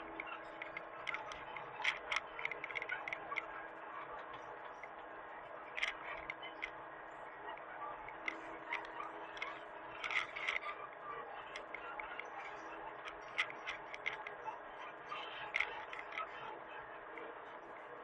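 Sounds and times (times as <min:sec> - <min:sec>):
sharp clicks and light scrapes: 0:00.0 - 0:03.6, 0:04.2 - 0:06.8, 0:07.5 - 0:10.8, 0:11.5 - 0:14.5, 0:15.2 - 0:16.4.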